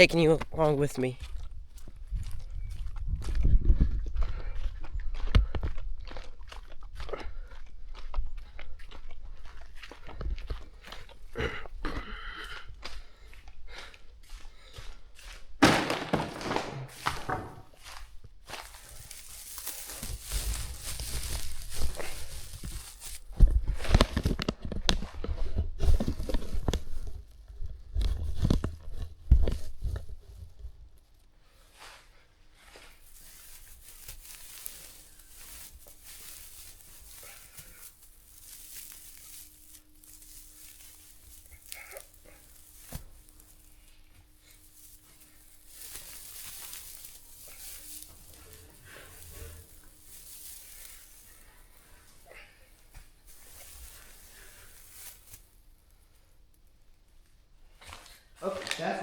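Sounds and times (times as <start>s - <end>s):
dry hay rustling and crackling: 0.0s - 3.4s, 7.9s - 58.9s
footsteps: 0.0s - 30.7s, 31.6s - 55.8s
loud thud: 15.6s - 17.6s
steady rustling hiss: 31.1s - 58.0s.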